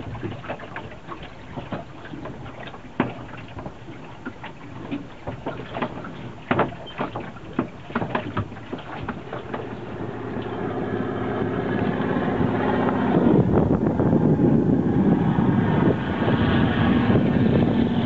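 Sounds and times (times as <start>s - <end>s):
knocks and clatters: 1.5s - 10.0s
motor droning: 9.2s - 18.0s.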